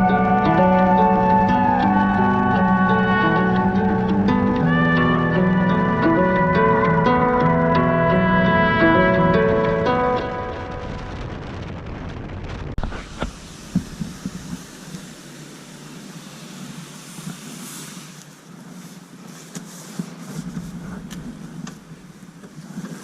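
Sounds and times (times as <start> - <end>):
plucked string music: 0.0 - 11.3
vehicle noise: 0.0 - 23.0
wind on microphone: 0.0 - 23.0.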